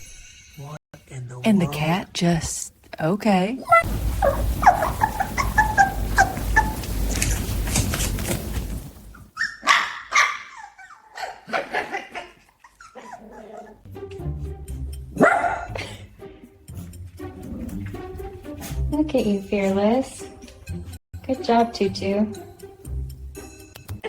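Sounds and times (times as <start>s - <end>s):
dog barking and yipping: 3.6s - 13.9s, 15.2s - 15.8s.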